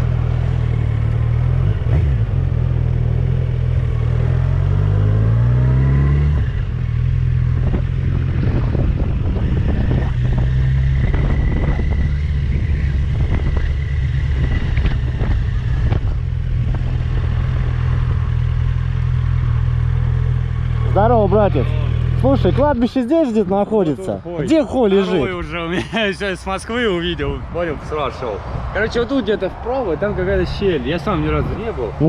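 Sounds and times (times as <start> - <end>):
motorcycle engine revving: 0.0 - 23.6.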